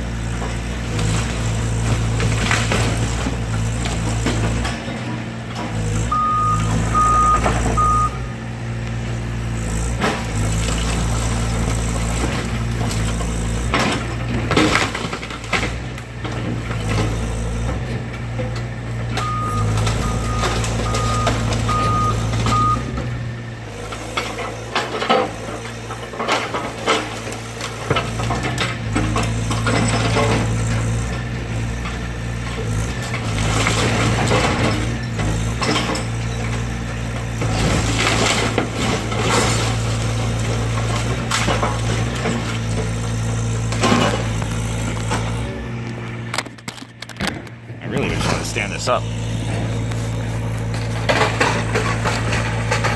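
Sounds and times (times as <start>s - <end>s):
excavator diesel engine running: 0.0s - 52.9s
crunching and clattering debris: 0.2s - 8.0s, 9.8s - 52.9s
backup alarm beeping: 6.1s - 8.3s, 19.2s - 22.9s.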